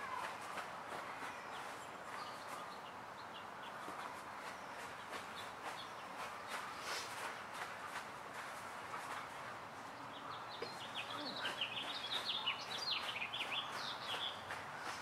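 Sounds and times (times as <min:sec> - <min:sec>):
faint outdoor background noise: 0:00.0 - 0:15.0
small songbird chirping: 0:01.4 - 0:07.0, 0:09.8 - 0:15.0.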